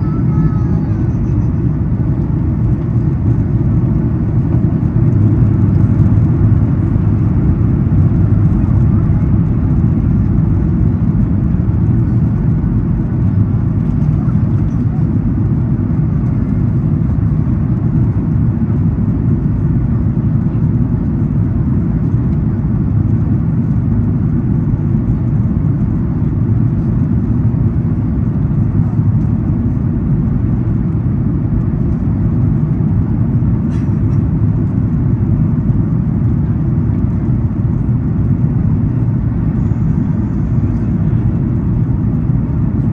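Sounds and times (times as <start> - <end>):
airplane cabin rumble: 0.0 - 42.9.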